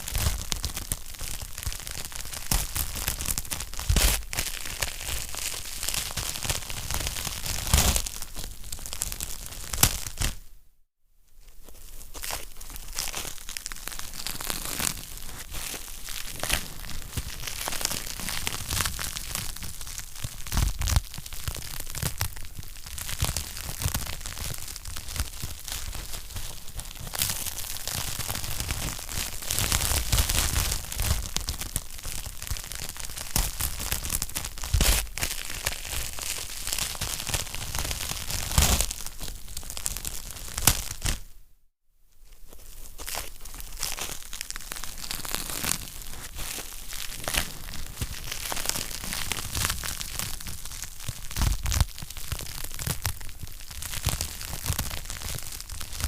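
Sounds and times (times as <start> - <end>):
wood fire crackling: 12.2 - 41.2.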